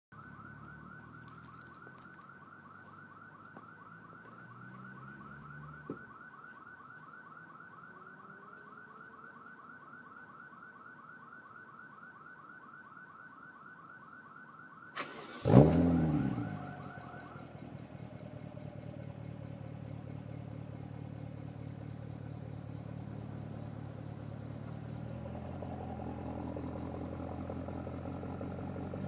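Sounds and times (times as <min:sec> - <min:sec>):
low engine hum: 0:15.2 - 0:29.0.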